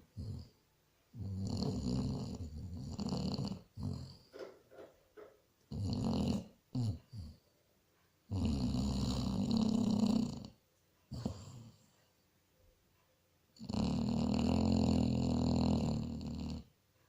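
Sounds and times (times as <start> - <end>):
dog snoring: 0.1 - 4.4, 5.7 - 7.4, 8.3 - 12.0, 13.6 - 16.7.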